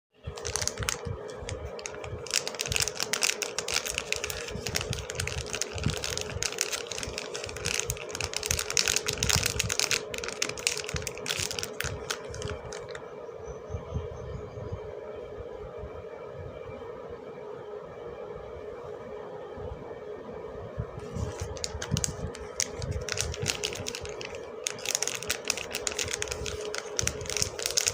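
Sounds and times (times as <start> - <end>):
steady hum: 0.2 - 27.9
packaging crinkling: 0.3 - 13.0, 21.0 - 27.9.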